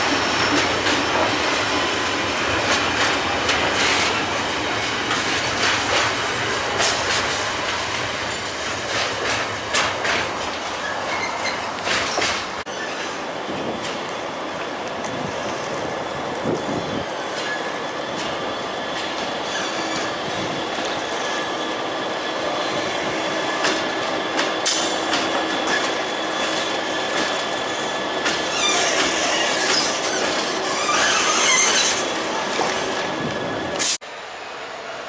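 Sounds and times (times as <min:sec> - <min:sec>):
rail clicks: 0:00.0 - 0:34.0
train rail rumble: 0:00.0 - 0:35.0
high wheel squeal: 0:10.8 - 0:11.8, 0:19.0 - 0:21.7, 0:25.6 - 0:34.0.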